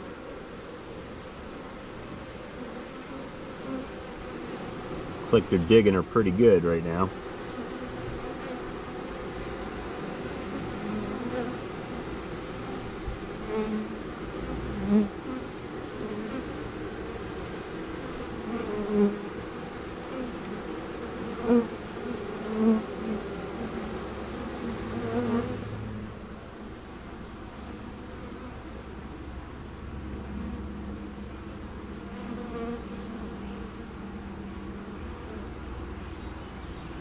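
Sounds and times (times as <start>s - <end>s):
single bee flying close: 0.0s - 26.4s, 30.2s - 35.8s
bees buzzing hum: 0.0s - 37.0s.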